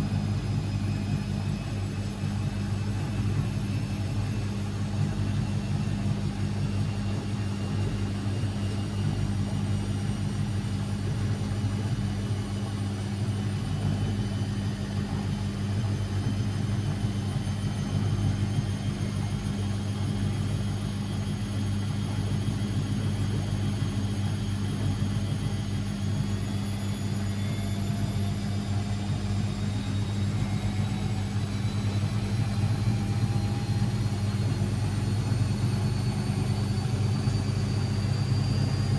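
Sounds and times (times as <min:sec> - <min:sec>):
washing machine running: 0:00.0 - 0:38.9
motor whine rising in pitch: 0:24.8 - 0:38.9.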